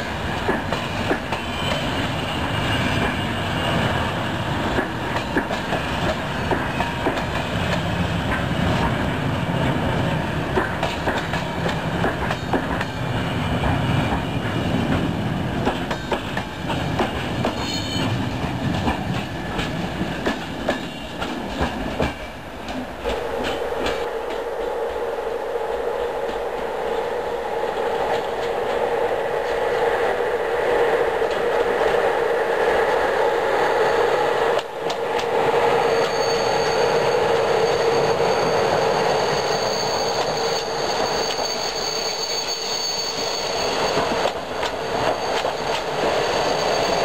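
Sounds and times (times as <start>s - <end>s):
high wheel squeal: 0.8s - 4.6s, 17.4s - 18.4s, 35.6s - 47.0s
train wheels clattering over joints: 4.6s - 9.0s, 13.6s - 24.5s, 39.4s - 47.0s.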